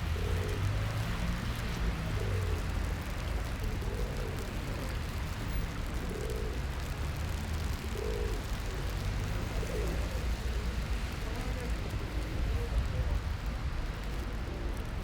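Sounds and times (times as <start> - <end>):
pigeon cooing: 0.0 - 0.7, 2.0 - 5.3, 5.9 - 6.8, 7.6 - 10.6
low traffic rumble: 0.0 - 15.0.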